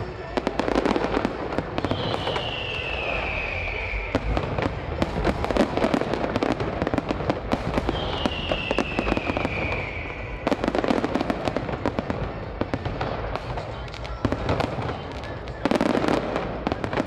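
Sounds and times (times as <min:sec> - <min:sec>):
fireworks bangs and crackling: 0:00.0 - 0:17.0
firework whistle sliding down: 0:01.8 - 0:04.5, 0:07.8 - 0:10.4.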